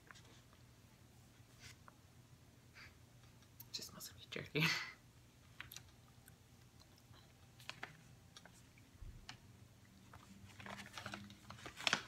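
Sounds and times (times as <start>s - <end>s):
faint chewing: 5.4s - 8.9s.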